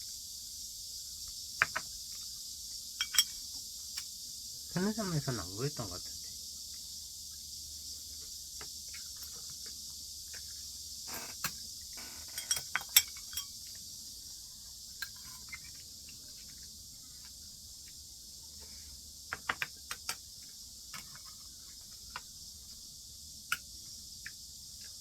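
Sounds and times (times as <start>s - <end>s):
steady high hiss: 0.0s - 25.0s
utensils clinking against dishes: 3.0s - 3.4s, 12.3s - 13.6s.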